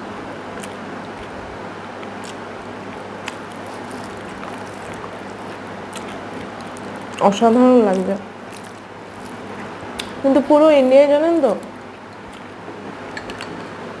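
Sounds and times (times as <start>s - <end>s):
steady hiss and low hum: 0.0s - 14.0s
person chewing: 0.5s - 7.2s, 7.8s - 10.2s, 12.0s - 12.5s.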